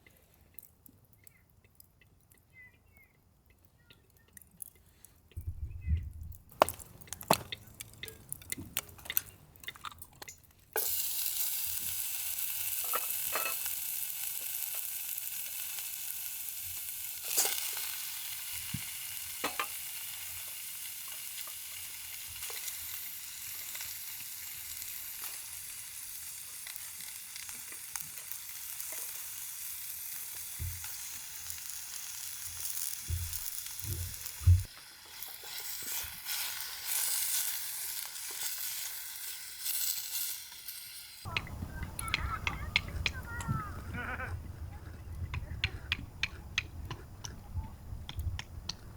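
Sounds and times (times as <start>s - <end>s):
food sizzling in a hot pan: 10.8s - 41.3s.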